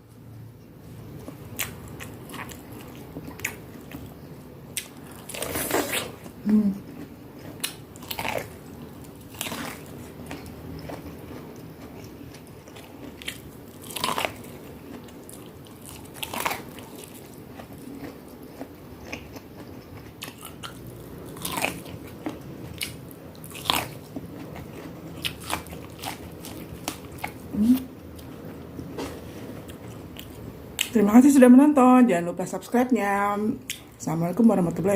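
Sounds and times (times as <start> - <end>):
chewing crunchy food: 1.0 - 31.0.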